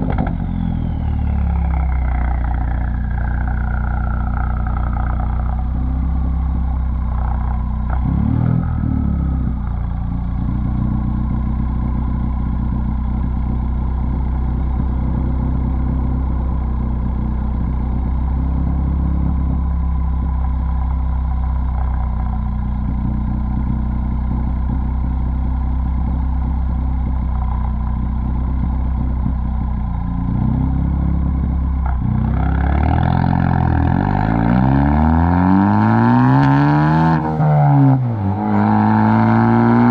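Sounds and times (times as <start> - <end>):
engine revving: 0.0 - 11.4, 30.2 - 39.9
car exhaust running: 0.0 - 39.9.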